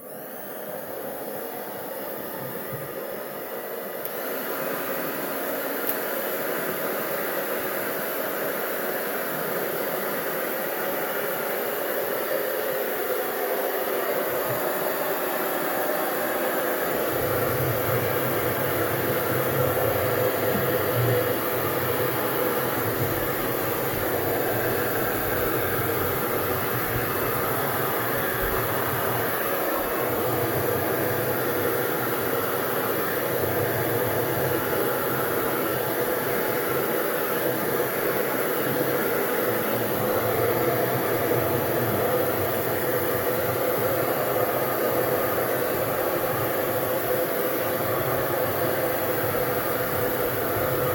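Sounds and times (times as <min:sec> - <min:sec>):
hair dryer blowing: 0:00.0 - 0:50.9.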